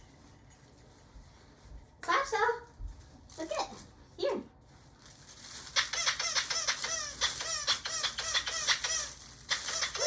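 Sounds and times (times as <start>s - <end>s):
rubber squeak toy squeaking: 5.7s - 10.0s.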